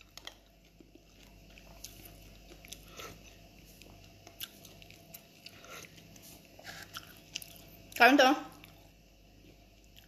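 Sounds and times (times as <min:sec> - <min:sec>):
faint chewing: 0:00.0 - 0:10.0.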